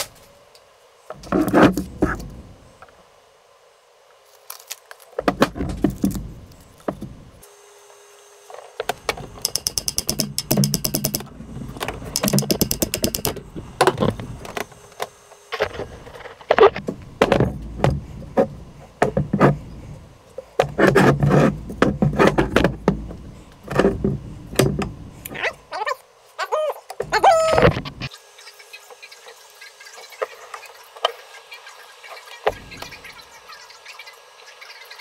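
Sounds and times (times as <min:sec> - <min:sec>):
hand ratchet clicking: 0:09.4 - 0:11.3, 0:12.1 - 0:13.4.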